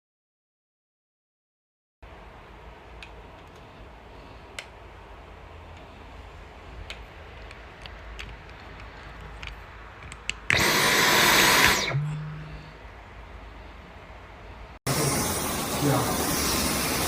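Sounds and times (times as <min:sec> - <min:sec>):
vacuum motor rushing: 0:10.5 - 0:12.7.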